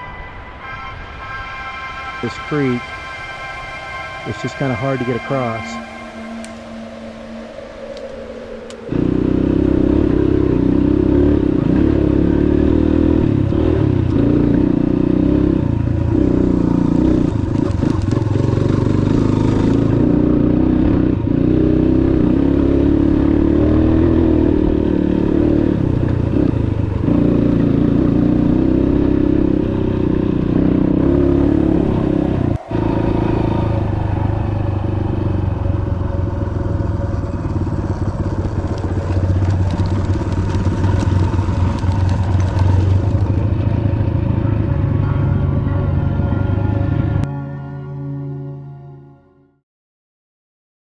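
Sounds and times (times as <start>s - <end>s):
dirt bike engine running: 8.9s - 45.8s.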